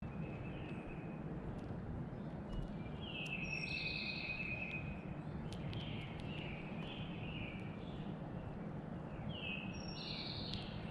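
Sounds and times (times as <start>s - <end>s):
sparrow whistled song: 2.4s - 10.9s
light clicks: 5.5s - 7.7s, 10.4s - 10.8s.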